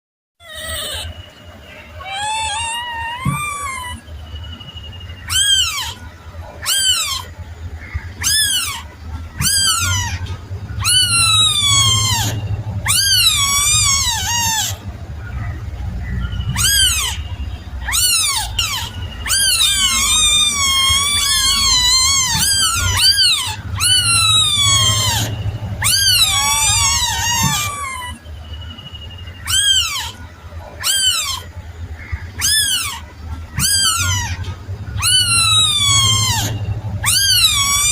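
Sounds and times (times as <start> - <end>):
kitten meowing: 0.4 - 1.2, 1.9 - 4.1, 5.3 - 7.3, 8.2 - 14.9, 16.6 - 17.2, 17.9 - 28.2, 29.4 - 30.2, 30.8 - 31.5, 33.6 - 37.9.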